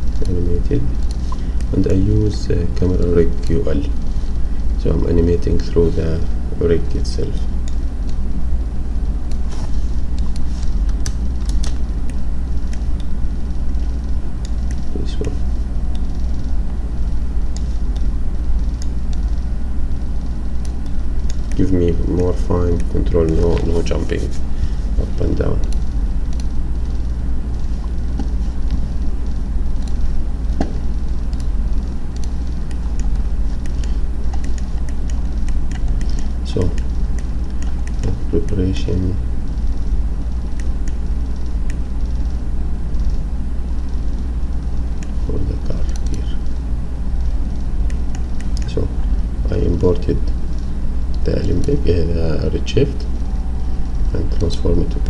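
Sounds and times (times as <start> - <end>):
low background rumble: 0.0 - 55.0
low hum: 0.0 - 55.0
computer mouse clicks: 10.2 - 13.1, 32.2 - 38.6, 45.9 - 46.2.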